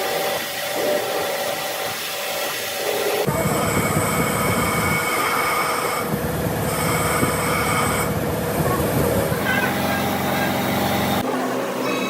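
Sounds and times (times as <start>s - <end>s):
metallic squealing of machine: 11.8s - 12.0s.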